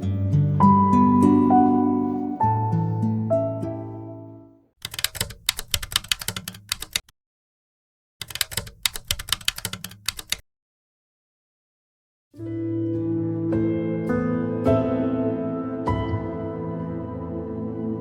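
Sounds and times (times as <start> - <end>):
soft background music: 0.0 - 4.5, 12.4 - 18.0
rapid keyboard typing: 4.8 - 7.1, 8.2 - 10.4.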